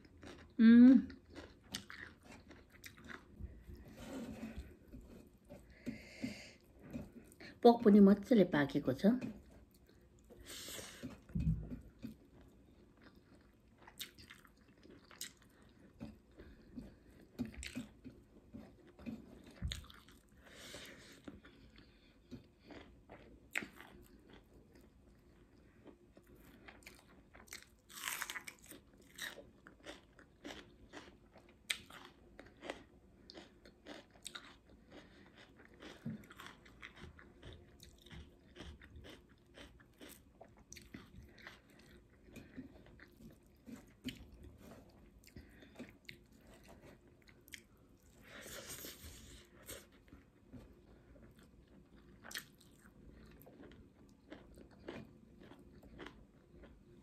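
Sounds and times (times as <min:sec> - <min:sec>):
chewing crunchy raw onion: 0:00.0 - 0:05.9, 0:09.2 - 0:57.0.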